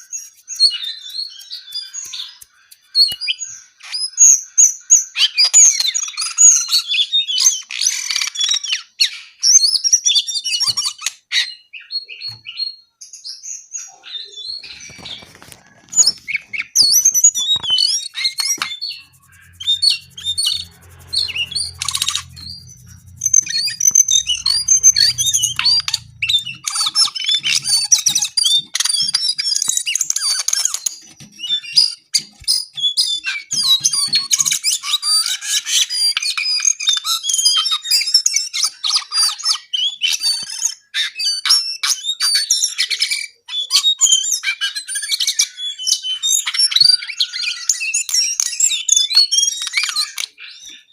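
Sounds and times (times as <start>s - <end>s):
faint low hum: 18.5s - 27.9s.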